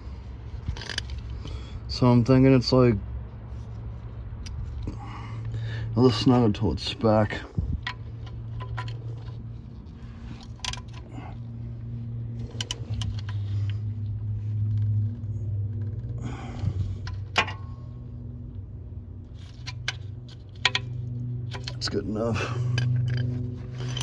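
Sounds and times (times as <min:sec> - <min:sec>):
steady low hum: 0:00.0 - 0:24.0
socket wrench clicking: 0:00.7 - 0:01.3, 0:10.4 - 0:11.1, 0:12.5 - 0:13.6, 0:19.4 - 0:21.9, 0:22.7 - 0:24.0.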